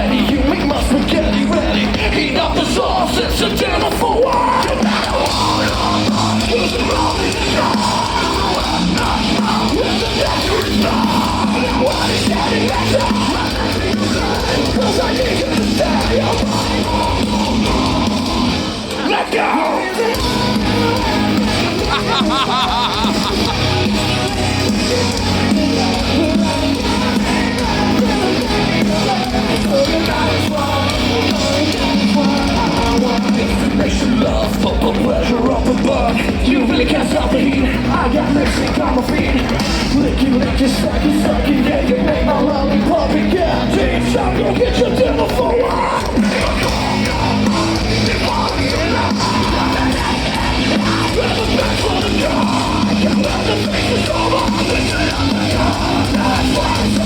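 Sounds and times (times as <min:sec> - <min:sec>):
bass guitar: 0:00.0 - 0:57.0
drums: 0:00.0 - 0:57.0
heavy distorted metal band: 0:00.0 - 0:57.0
person yelling vocals: 0:21.5 - 0:23.9.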